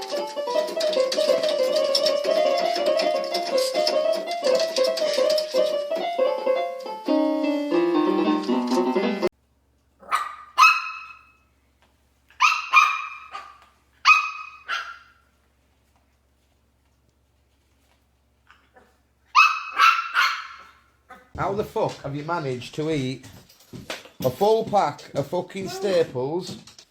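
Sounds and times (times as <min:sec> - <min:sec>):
piano music: 0:00.0 - 0:09.3
dog barking: 0:10.0 - 0:11.4, 0:12.4 - 0:15.2, 0:19.3 - 0:21.3.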